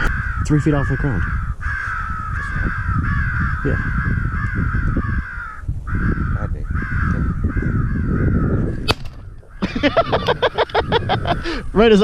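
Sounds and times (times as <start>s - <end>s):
crows cawing: 0.0s - 11.7s.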